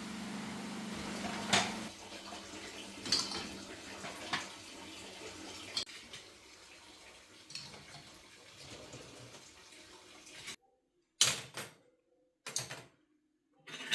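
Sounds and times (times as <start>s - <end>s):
running water rushing: 0.0s - 10.6s.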